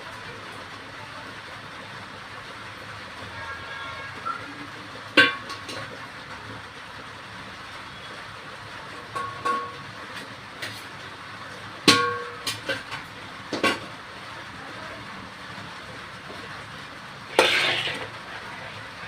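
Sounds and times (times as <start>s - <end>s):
steel utensils clanking: 9.1s - 9.8s, 17.3s - 18.2s
utensils scraping clatter: 17.3s - 18.9s.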